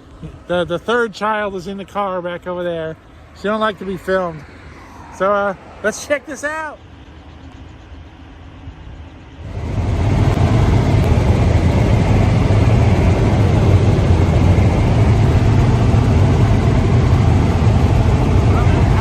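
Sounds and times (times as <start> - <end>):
helicopter engine and rotor: 5.6 - 19.0.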